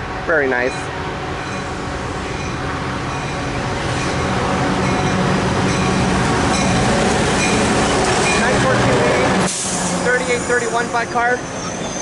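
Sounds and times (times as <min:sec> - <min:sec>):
diesel locomotive engine drone: 0:00.0 - 0:12.0.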